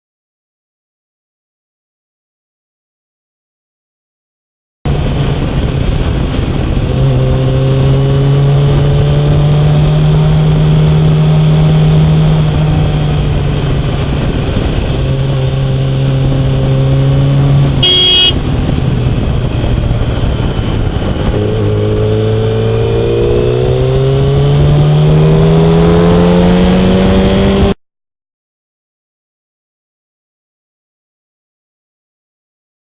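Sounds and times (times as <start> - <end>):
motorcycle engine running: 4.9 - 27.7
wind rush: 4.9 - 27.8
short high-pitched blast: 17.8 - 18.4.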